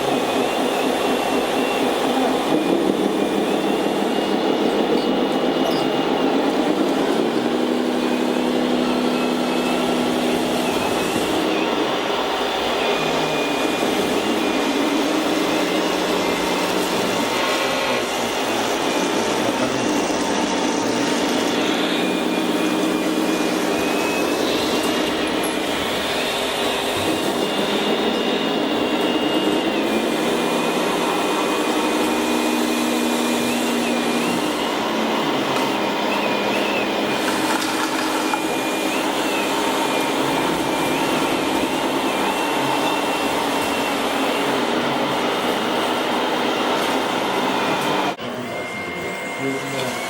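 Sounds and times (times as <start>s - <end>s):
high motor whine: 0.0s - 50.0s.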